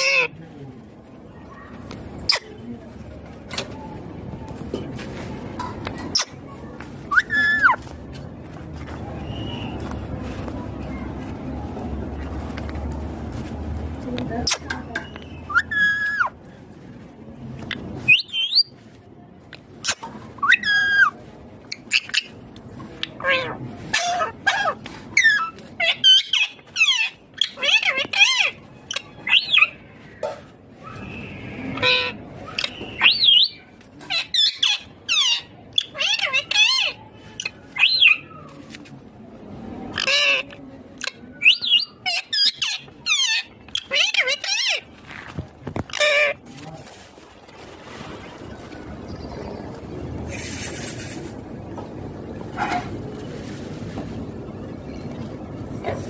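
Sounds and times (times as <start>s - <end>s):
parrot squawking: 0.0s - 0.3s, 15.4s - 16.3s, 23.1s - 29.8s, 39.9s - 44.8s, 45.9s - 46.4s.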